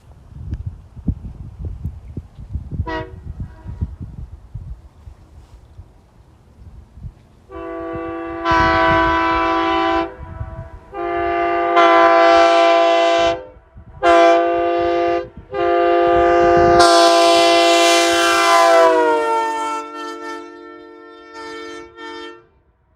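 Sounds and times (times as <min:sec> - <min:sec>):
wind rumbling on microphone: 0:00.0 - 0:19.8
air horn chord blasts: 0:02.8 - 0:03.8, 0:07.5 - 0:22.7.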